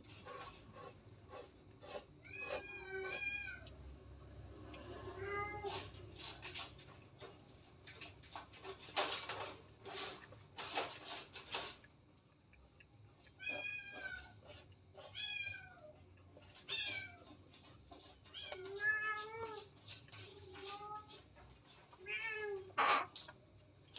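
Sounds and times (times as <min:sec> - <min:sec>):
cat meowing: 0:02.2 - 0:03.7, 0:05.0 - 0:05.9, 0:13.4 - 0:14.4, 0:15.0 - 0:16.0, 0:16.6 - 0:17.3, 0:22.0 - 0:22.8.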